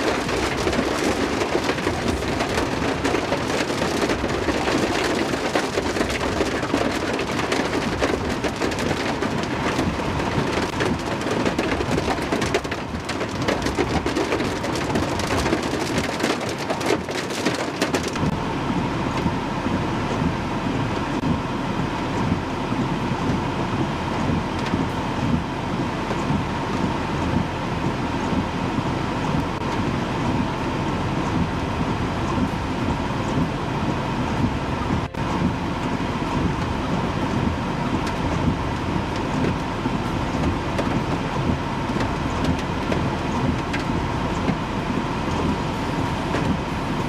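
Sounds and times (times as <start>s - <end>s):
heavy rain falling: 0.0s - 19.4s, 29.4s - 47.0s.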